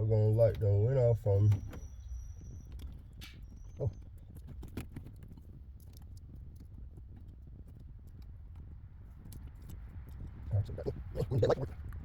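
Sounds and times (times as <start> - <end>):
small clicks and rustles of handling wires: 1.4 - 10.5.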